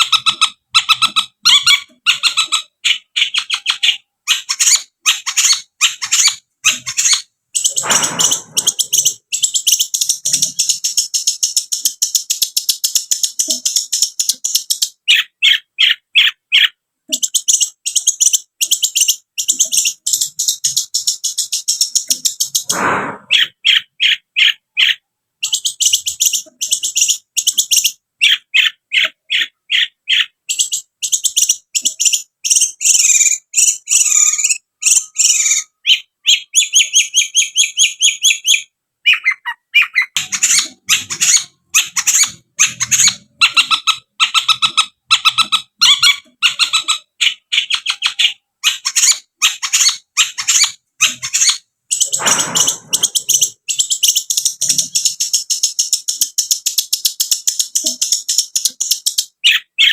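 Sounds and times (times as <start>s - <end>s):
brief harsh bird call: 7.7s - 9.0s, 22.6s - 23.8s, 52.1s - 53.4s.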